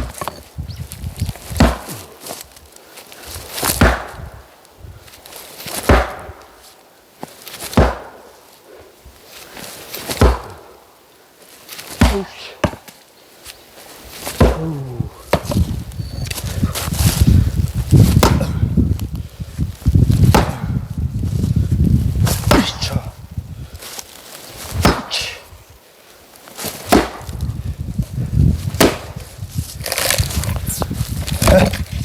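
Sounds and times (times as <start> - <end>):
axe chopping firewood: 1.4 - 2.4, 3.6 - 4.3, 5.7 - 6.5, 7.6 - 8.2, 10.1 - 10.7, 11.9 - 13.0, 14.2 - 15.7, 18.0 - 18.6, 20.2 - 20.8, 22.3 - 23.0, 24.7 - 25.4, 26.6 - 27.4, 28.7 - 29.2.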